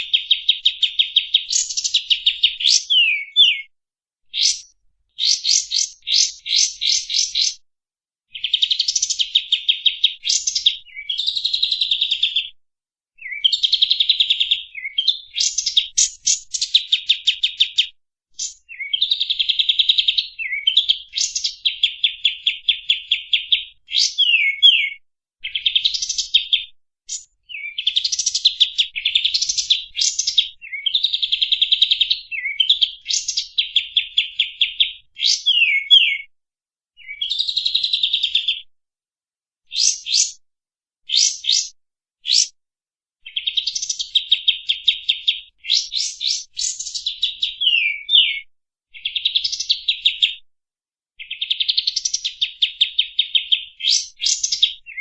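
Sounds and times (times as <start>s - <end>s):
songbird singing: 0.0s - 3.7s, 4.3s - 7.6s, 8.3s - 12.5s, 13.2s - 17.8s, 18.4s - 31.3s, 32.0s - 36.3s, 39.7s - 40.4s, 41.1s - 41.7s, 44.7s - 48.4s.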